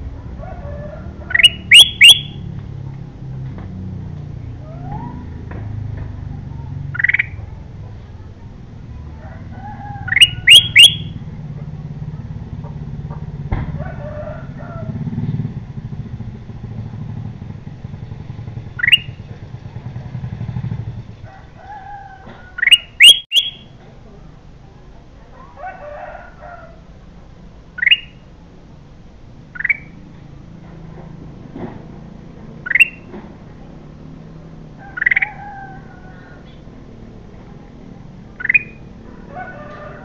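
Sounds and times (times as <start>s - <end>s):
bird calling rising whistles: 1.3s - 2.4s, 10.1s - 11.2s, 22.6s - 23.7s.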